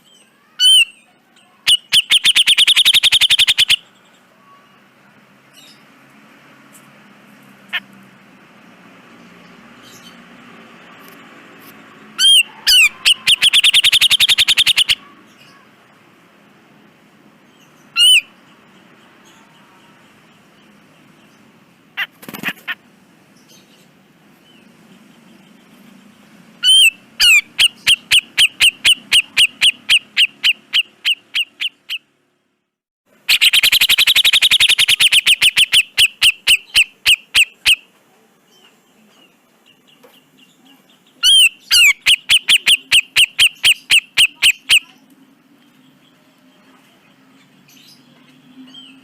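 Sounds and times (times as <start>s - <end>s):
bird calling rapid notes: 0.0s - 0.9s, 1.7s - 3.8s, 12.2s - 15.1s, 17.9s - 18.3s, 22.0s - 22.8s, 26.6s - 32.1s, 33.2s - 37.9s, 41.2s - 45.0s.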